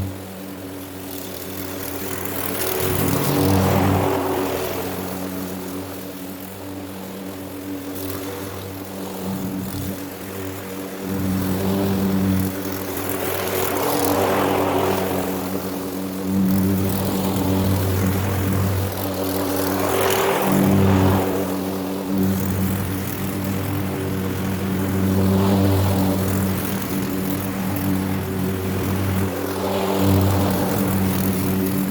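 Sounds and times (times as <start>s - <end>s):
lawn mower running: 0.0s - 31.9s.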